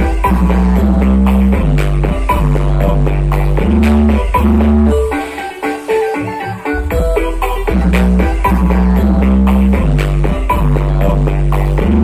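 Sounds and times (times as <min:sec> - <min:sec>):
low bass hits: 0:00.0 - 0:05.0
deep bass: 0:00.0 - 0:05.1, 0:06.9 - 0:12.0.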